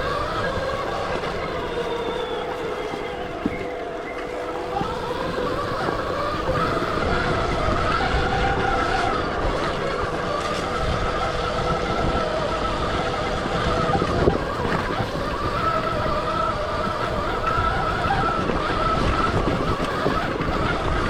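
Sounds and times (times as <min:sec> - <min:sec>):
electric dirt bike motor whining: 0:00.0 - 0:21.0
rough rumble: 0:00.0 - 0:21.0.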